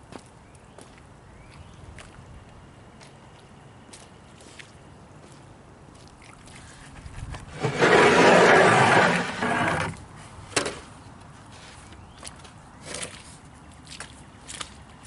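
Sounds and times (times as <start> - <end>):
wooden boards scraping: 7.5 - 10.0.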